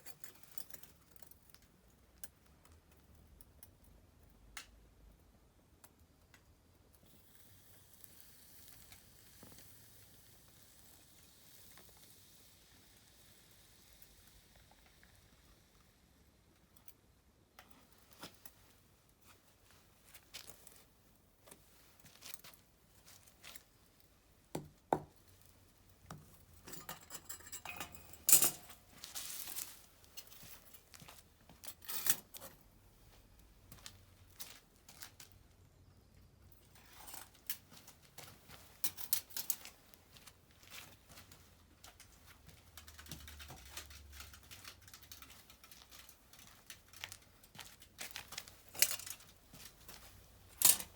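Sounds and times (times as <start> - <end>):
objects clicking and clinking: 26.3 - 32.5, 41.8 - 50.9.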